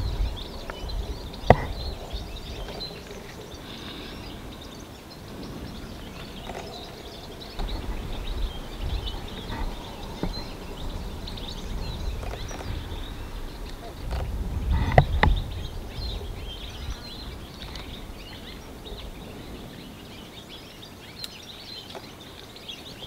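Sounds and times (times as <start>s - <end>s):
small birds chirping: 0.0s - 23.0s
wind rumble on microphone: 0.0s - 23.0s.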